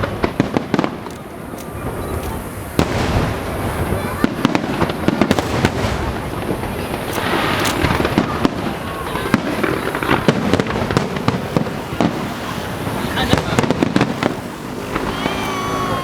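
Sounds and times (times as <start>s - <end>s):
fireworks booming and crackling: 0.0s - 16.0s.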